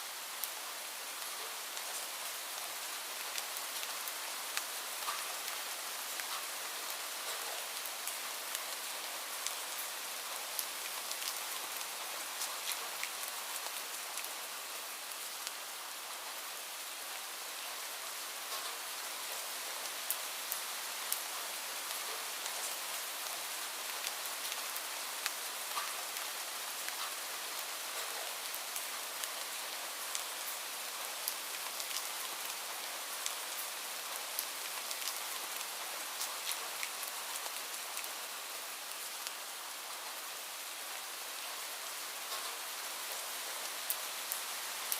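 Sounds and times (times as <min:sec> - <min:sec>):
steady rainfall: 0:00.0 - 0:44.9.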